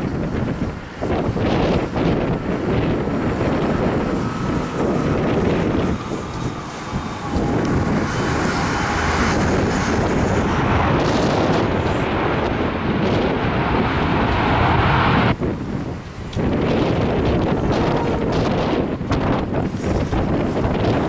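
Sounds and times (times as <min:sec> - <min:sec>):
jet airliner engines: 0:00.0 - 0:21.0
wind buffeting microphone: 0:00.0 - 0:21.0
thin high whine: 0:03.4 - 0:12.6.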